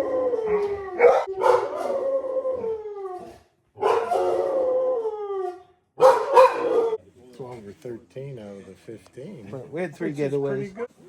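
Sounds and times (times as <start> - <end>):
dogs howling: 0.0 - 7.0.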